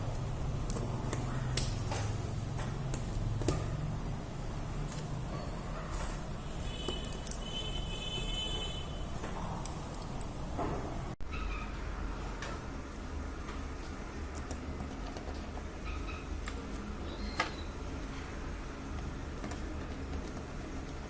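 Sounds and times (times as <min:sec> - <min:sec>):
steady low hum: 0:00.0 - 0:21.0
small tools clicking and tapping: 0:06.8 - 0:07.5.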